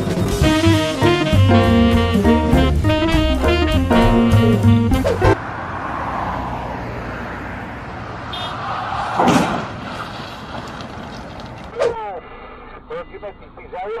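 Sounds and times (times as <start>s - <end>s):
car road noise: 0.0s - 14.0s
saxophone jazz music: 0.2s - 5.4s.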